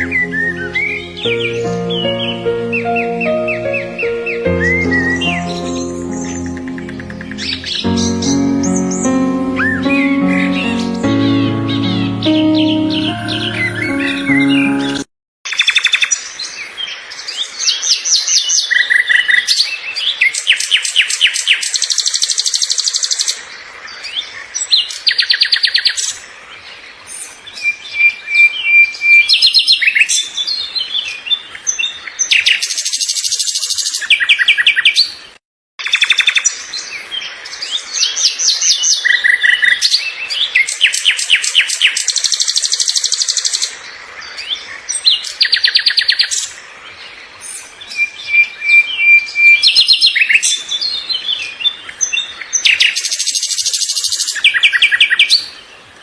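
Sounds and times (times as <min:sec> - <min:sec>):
songbirds chirping and singing: 0:00.0 - 0:15.0.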